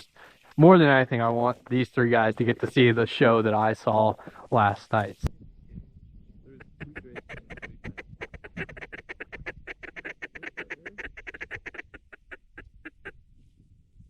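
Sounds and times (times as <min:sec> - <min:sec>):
duck quacks: 0:06.5 - 0:13.2.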